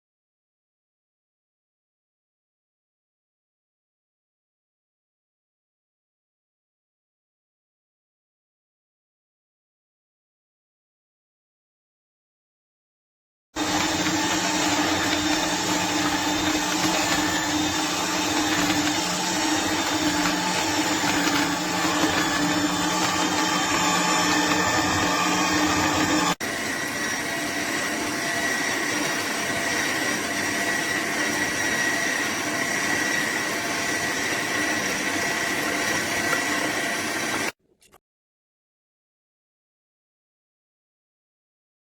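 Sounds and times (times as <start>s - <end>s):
juicer motor running: 13.6s - 37.6s.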